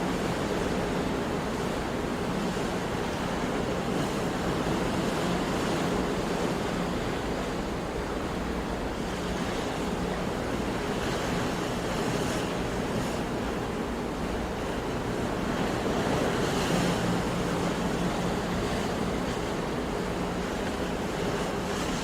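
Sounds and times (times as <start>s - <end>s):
sea waves washing on shore: 0.0s - 22.0s.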